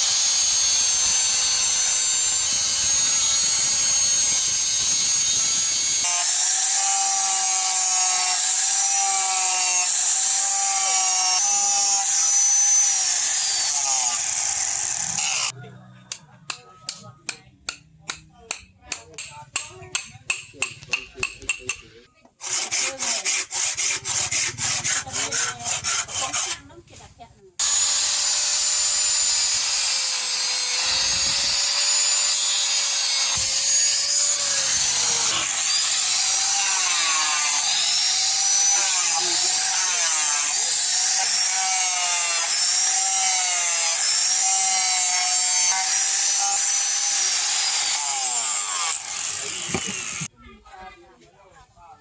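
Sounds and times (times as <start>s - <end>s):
power tool motor whine: 0.0s - 15.5s, 27.6s - 50.3s
file rasping on steel: 16.5s - 26.8s, 29.7s - 50.3s.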